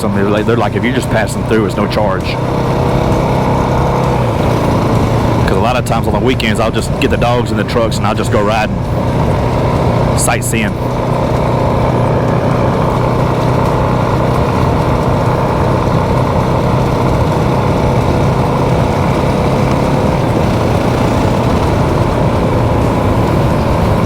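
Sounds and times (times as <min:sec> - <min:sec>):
motorcycle engine cruising: 0:00.0 - 0:24.0
wind and road noise: 0:00.0 - 0:24.0.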